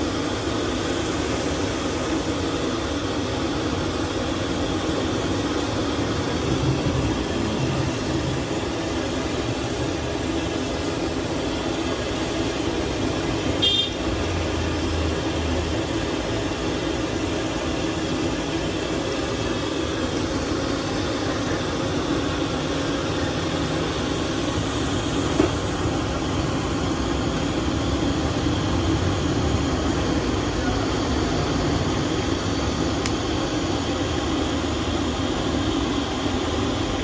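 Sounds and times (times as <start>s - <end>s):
roadside traffic: 0.0s - 37.0s
short vehicle horn toot: 13.6s - 14.1s.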